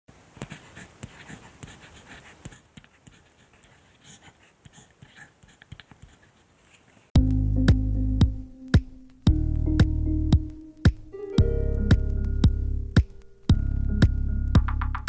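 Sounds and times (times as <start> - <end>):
pen scratching on paper: 0.4 - 6.9.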